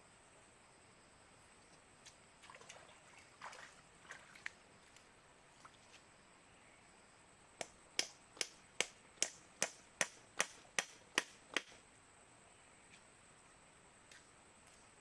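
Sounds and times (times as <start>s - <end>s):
hand tool striking: 7.6s - 11.7s.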